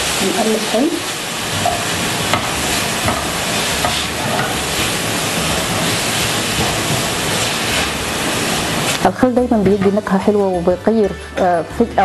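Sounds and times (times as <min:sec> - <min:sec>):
food sizzling in frying pan: 0:00.0 - 0:12.0.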